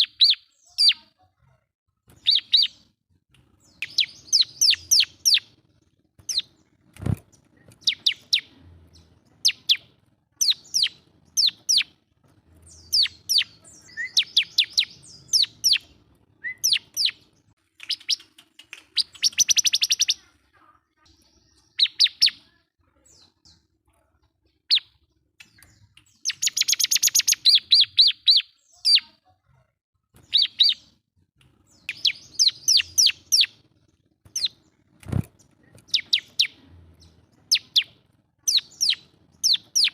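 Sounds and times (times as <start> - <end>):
rapid buzzy bird trill: 3.8 - 5.6, 9.4 - 12.0, 12.7 - 20.2, 37.4 - 39.9.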